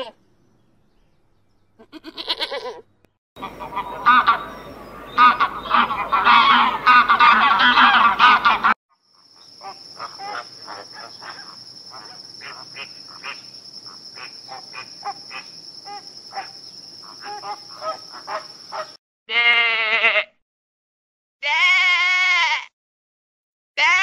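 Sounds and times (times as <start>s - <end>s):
sheep bleating: 1.8s - 2.8s, 19.3s - 20.4s, 21.4s - 22.7s, 23.8s - 24.0s
flamingos honking: 3.4s - 8.8s, 9.6s - 13.4s, 14.2s - 18.9s
insect buzz: 8.9s - 19.0s.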